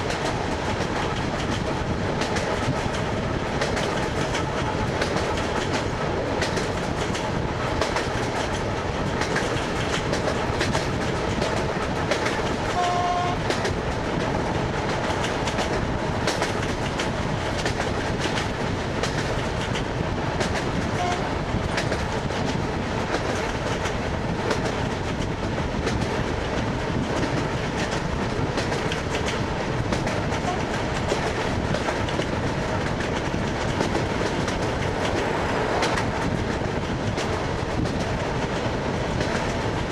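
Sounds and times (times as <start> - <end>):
train wheels clattering over rails: 0.0 - 39.9
train horn: 12.7 - 13.6, 20.9 - 21.4, 30.4 - 30.7.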